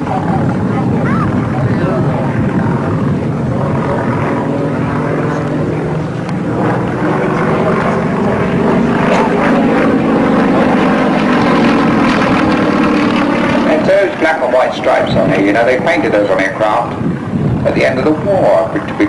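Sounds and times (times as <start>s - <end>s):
propeller aircraft flying past: 0.0s - 19.0s.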